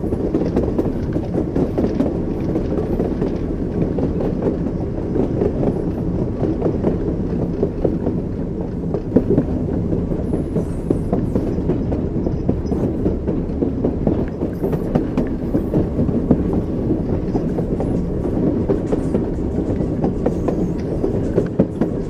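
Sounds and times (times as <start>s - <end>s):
train wheels clattering: 0.0s - 22.0s.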